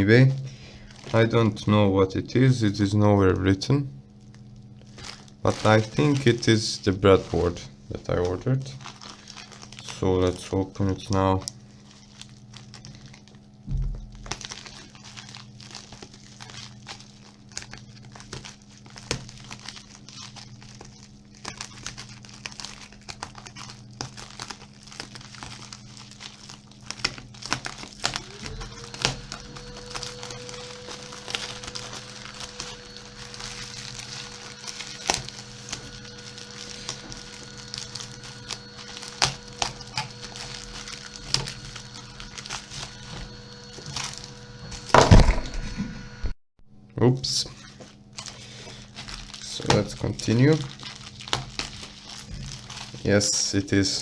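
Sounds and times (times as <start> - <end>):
packaging crinkling and tearing: 0.0 - 1.7, 4.2 - 45.6, 47.2 - 54.0
low hum: 11.4 - 54.0.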